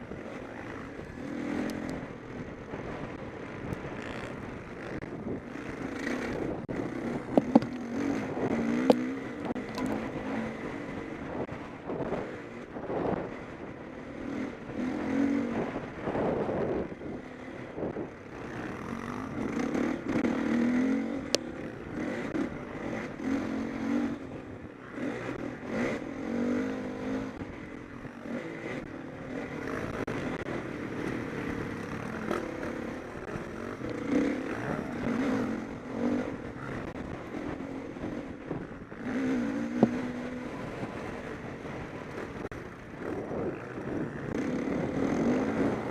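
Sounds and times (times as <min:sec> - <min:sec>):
motorcycle engines revving: 0:00.0 - 0:45.9.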